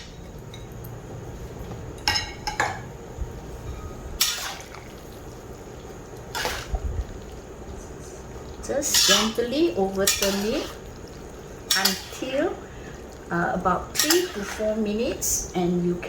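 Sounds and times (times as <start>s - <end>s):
gravy bubbling: 4.1s - 15.2s
utensil clattering against pan: 10.0s - 10.7s, 11.7s - 12.2s, 14.0s - 14.7s.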